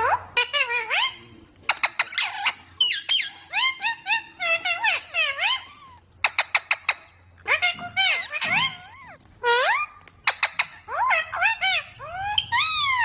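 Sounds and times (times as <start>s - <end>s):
baby parrots calling: 0.0s - 13.0s.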